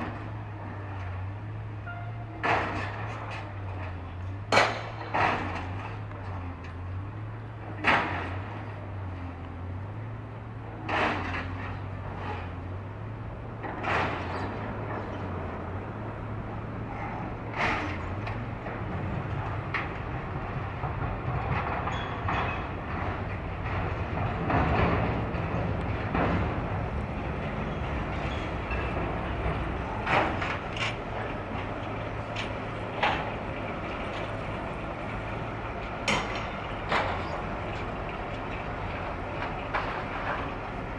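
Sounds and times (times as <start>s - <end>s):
train running hum: 0.0s - 40.9s
train wheel clacks: 13.5s - 40.9s.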